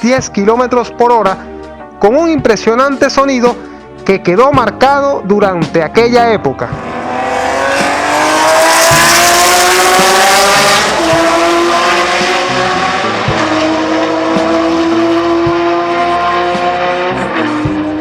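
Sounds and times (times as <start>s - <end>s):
race car engine at high revs: 6.8s - 18.0s.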